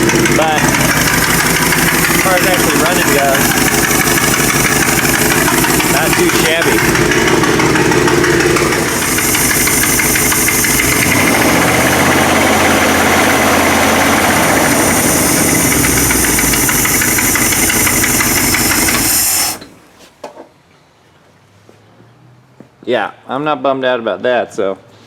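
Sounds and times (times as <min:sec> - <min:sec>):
loud car engine running: 0:00.0 - 0:19.8.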